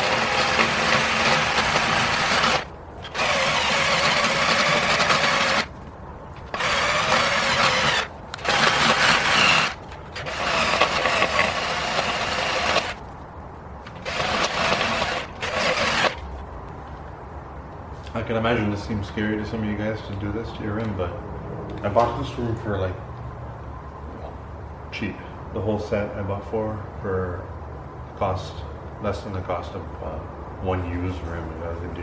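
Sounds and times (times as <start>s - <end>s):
drill grinding metal wheel: 0.0s - 5.7s, 6.5s - 13.0s, 13.9s - 16.2s.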